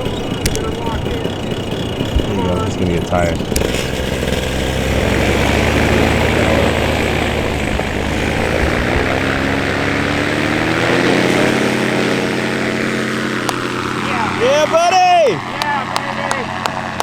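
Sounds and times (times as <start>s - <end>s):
paramotor engine and propeller: 0.0s - 17.0s.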